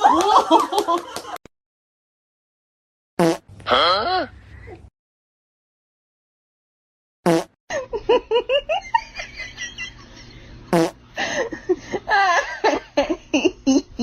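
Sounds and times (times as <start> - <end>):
person laughing: 7.7 - 10.4, 11.2 - 14.0.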